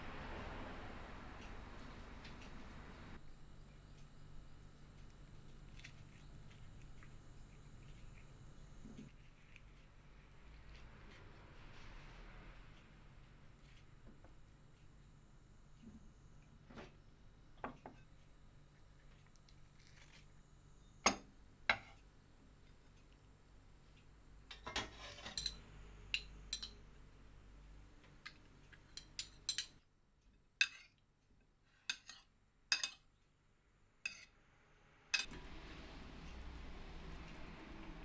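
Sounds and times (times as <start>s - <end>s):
dishes and utensils clinking: 24.5s - 25.6s, 26.2s - 26.8s, 28.9s - 29.8s, 31.9s - 33.0s, 35.2s - 35.4s.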